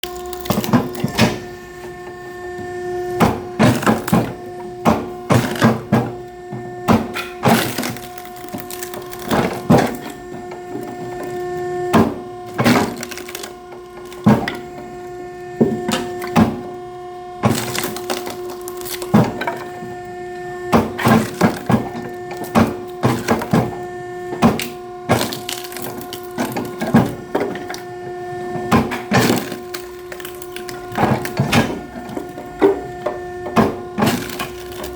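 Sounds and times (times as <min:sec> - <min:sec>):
machine motor hum: 0:00.0 - 0:34.9
wood cracking and splitting: 0:00.0 - 0:34.9.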